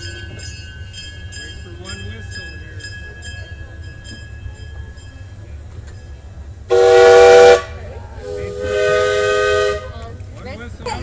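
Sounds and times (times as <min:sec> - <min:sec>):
train rumble: 0:00.0 - 0:11.0
steam locomotive whistle: 0:06.7 - 0:10.0.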